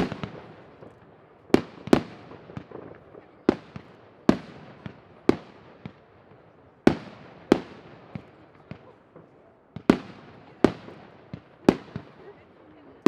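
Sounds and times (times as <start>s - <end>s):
fireworks bangs: 0.0s - 13.0s
low background noise: 0.0s - 13.0s.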